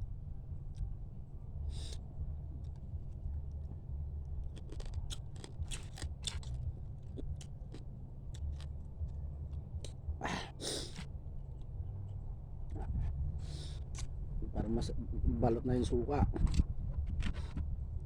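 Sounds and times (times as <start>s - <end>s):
steady low hum: 0.0s - 18.0s
crab shell cracking: 4.6s - 6.5s.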